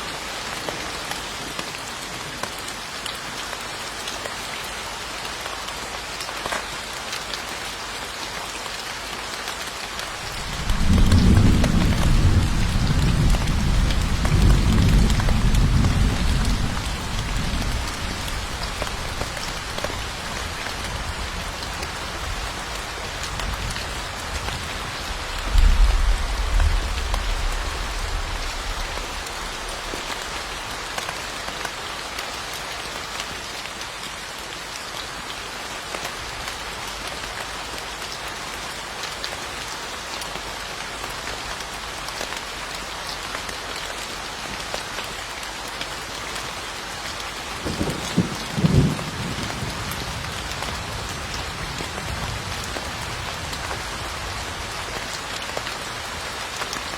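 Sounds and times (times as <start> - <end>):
steady rain: 0.0 - 56.9
thunder rumbling: 10.1 - 19.2, 24.5 - 30.6.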